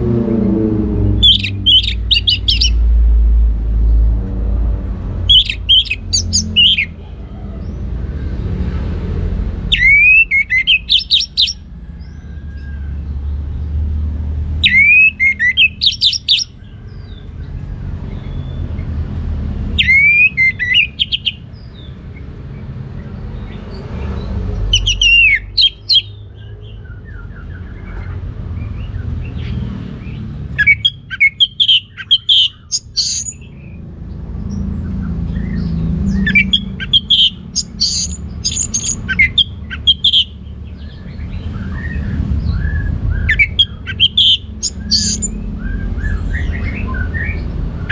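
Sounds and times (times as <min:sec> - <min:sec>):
thrush singing: 0:05.0 - 0:11.7.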